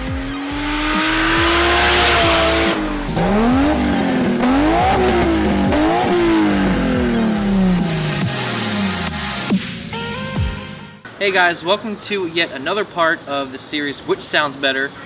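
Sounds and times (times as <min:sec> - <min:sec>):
car engine revving: 0:00.0 - 0:09.6
electronic beat: 0:00.0 - 0:09.8.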